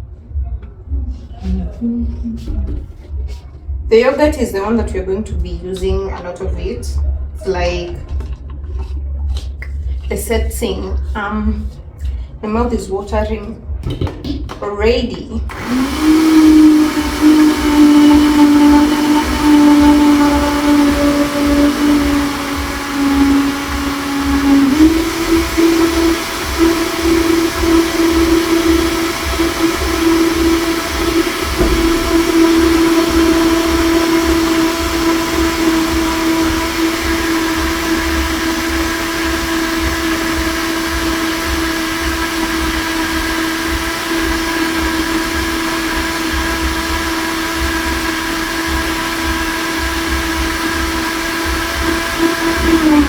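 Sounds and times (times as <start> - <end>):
blender motor running: 15.5 - 53.0.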